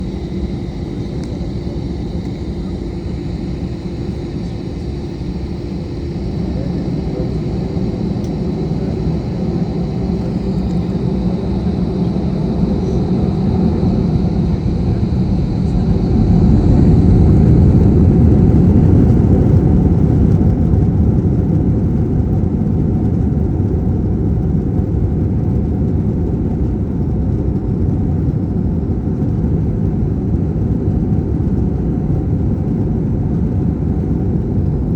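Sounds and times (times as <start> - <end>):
faint high whine: 0.0 - 20.4
jet engines and runway rumble: 0.0 - 34.9.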